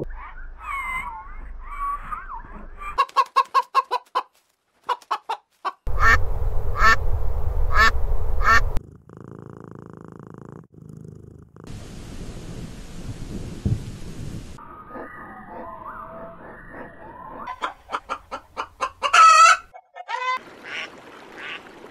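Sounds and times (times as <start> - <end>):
duck quacking: 5.9 - 6.2, 6.8 - 7.0, 7.7 - 8.7
hiss: 11.7 - 14.6.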